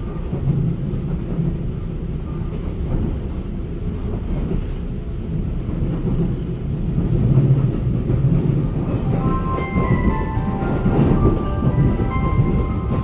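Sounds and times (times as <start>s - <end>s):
train wheels rumbling on track: 0.0s - 13.0s
pair of steady tones: 8.8s - 13.0s.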